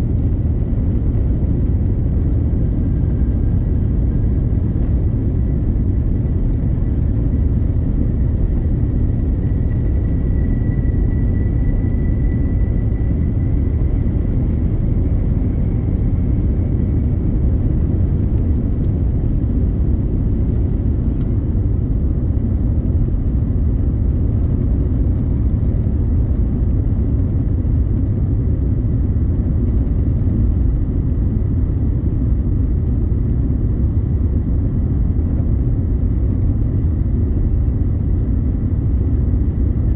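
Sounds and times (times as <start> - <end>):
jet engine cabin rumble: 0.0 - 39.9
faint high whine: 2.4 - 18.2.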